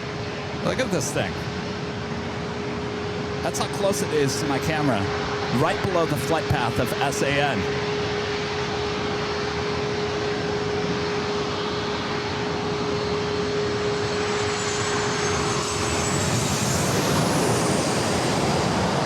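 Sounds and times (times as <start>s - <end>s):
jet airliner engine roar: 0.0s - 19.0s
steady hum: 2.6s - 10.6s
high whine falling in pitch: 3.1s - 18.2s.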